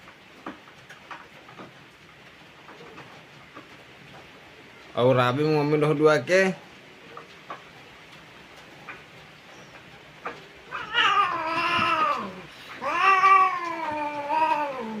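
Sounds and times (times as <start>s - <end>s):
cat yowling: 10.7s - 15.0s.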